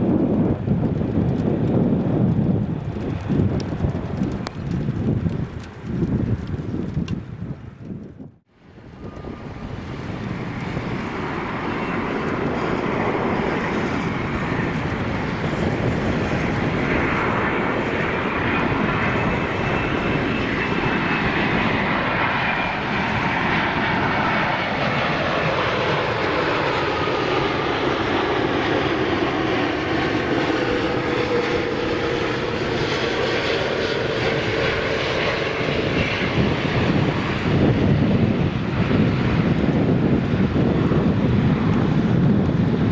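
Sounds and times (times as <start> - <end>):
jet engines whining: 8.6 - 42.9.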